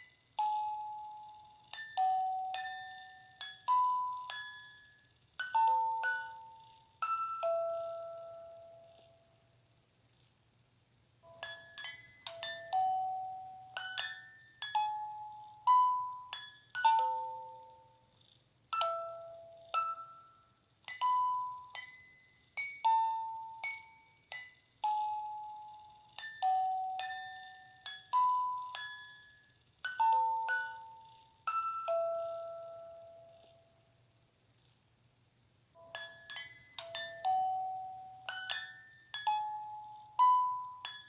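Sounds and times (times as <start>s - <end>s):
bell-like chime lullaby: 0.0s - 9.4s, 11.2s - 18.1s, 18.7s - 33.9s, 35.8s - 41.0s.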